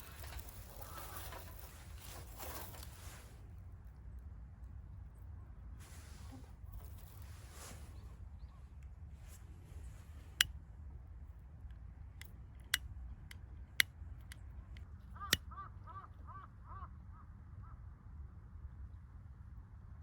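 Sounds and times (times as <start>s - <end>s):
campfire wood crackling: 0.0s - 3.4s.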